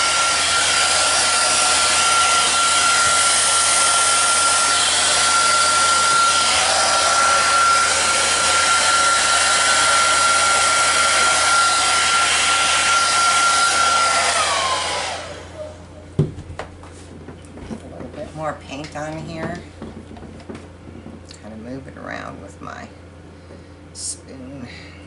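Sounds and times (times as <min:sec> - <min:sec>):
hair dryer whine: 0:00.0 - 0:16.3.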